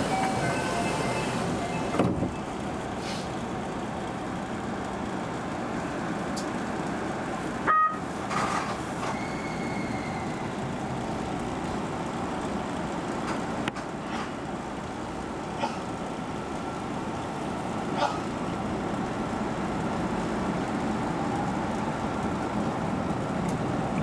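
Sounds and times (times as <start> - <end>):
electric train rumbling: 0.0 - 24.0
two-pitch train horn toot: 7.7 - 8.0.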